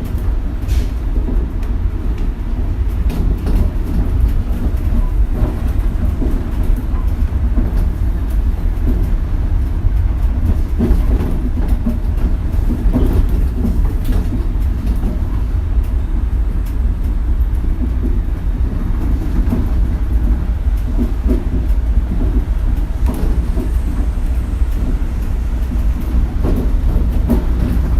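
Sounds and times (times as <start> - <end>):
monorail car rumble: 0.0 - 27.9
knocks and rattles: 25.7 - 27.9.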